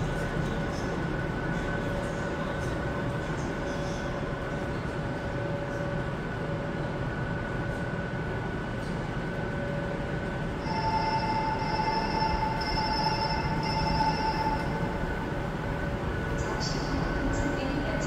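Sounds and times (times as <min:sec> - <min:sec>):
high whine of light-rail train: 0:00.0 - 0:18.0.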